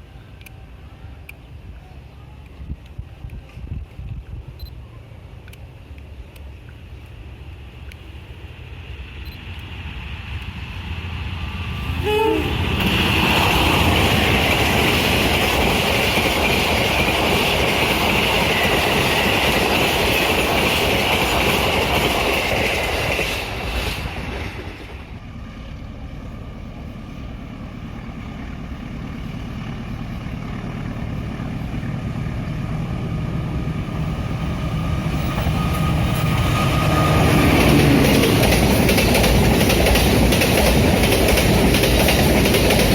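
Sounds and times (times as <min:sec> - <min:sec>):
train wheels rumbling: 0:05.4 - 0:42.9
train horn blast: 0:12.0 - 0:12.8.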